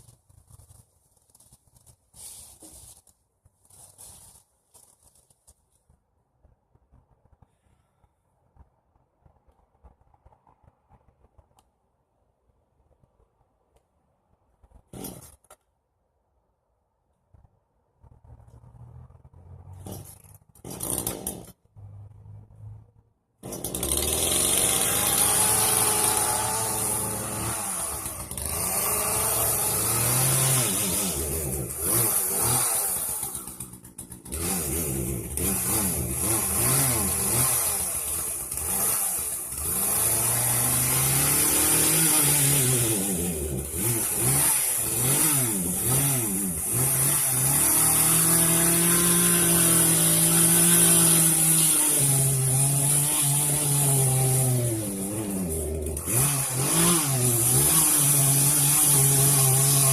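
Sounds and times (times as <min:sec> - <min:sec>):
chainsaw revving: 0:14.9 - 0:15.4, 0:19.8 - 0:21.6, 0:23.4 - 0:59.9.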